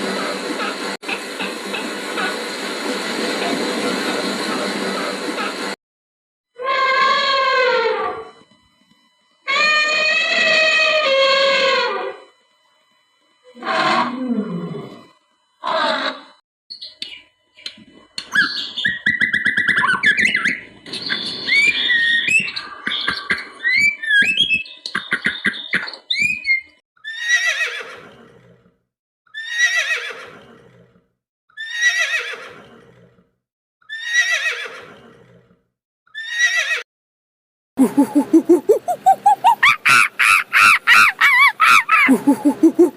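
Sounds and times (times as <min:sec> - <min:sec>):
horse whinnying: 0:27.0 - 0:28.6, 0:29.3 - 0:30.9, 0:31.6 - 0:33.2, 0:33.9 - 0:35.5, 0:36.2 - 0:36.8.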